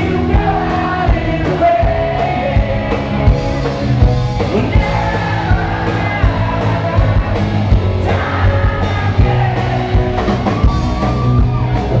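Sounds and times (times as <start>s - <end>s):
person singing: 0.0s - 3.5s
drum kit beat: 0.0s - 12.0s
electric guitar: 0.0s - 12.0s.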